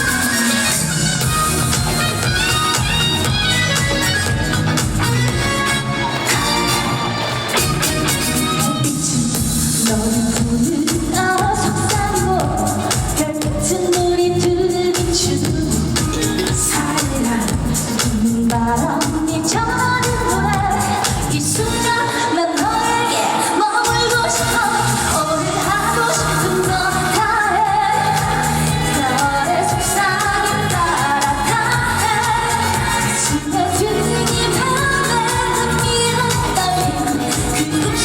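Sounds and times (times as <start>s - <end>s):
woman singing: 0.0s - 7.0s, 8.1s - 38.0s
pop backing track with beat: 0.0s - 38.0s.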